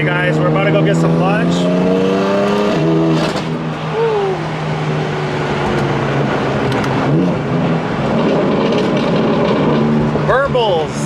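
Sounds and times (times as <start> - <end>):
road noise: 0.0 - 11.0
car engine running: 0.1 - 10.5.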